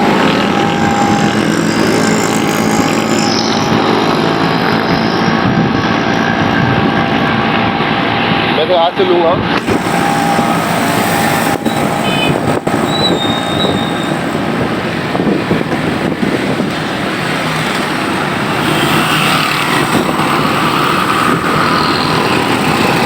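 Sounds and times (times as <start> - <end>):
high thin tone: 0.0 - 5.3, 9.6 - 14.4
road traffic: 0.0 - 23.0
strong wind: 0.0 - 23.0.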